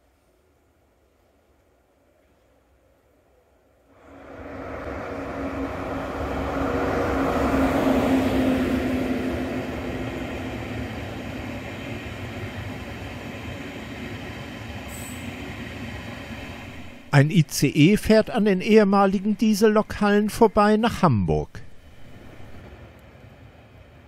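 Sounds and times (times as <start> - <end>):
high-speed train passing: 0.1 - 24.0
humming tone: 4.0 - 10.4.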